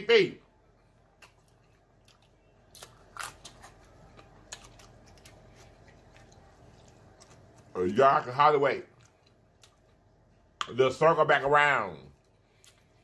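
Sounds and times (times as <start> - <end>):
close-up chewing: 0.9 - 8.0, 8.8 - 10.7.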